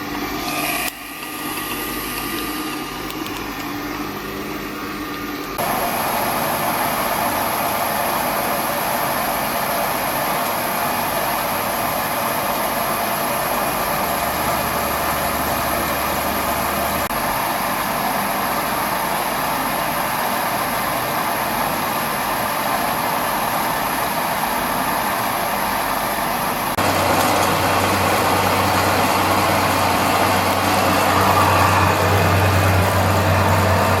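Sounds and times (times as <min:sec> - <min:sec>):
thin high whine: 0:00.0 - 0:19.3
milling machine humming: 0:00.0 - 0:34.0.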